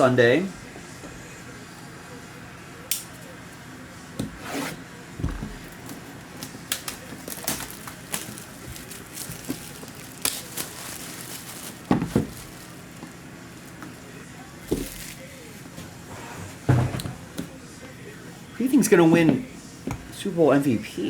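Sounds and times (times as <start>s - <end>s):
packaging tearing and rustling: 5.8s - 13.1s, 14.7s - 15.2s.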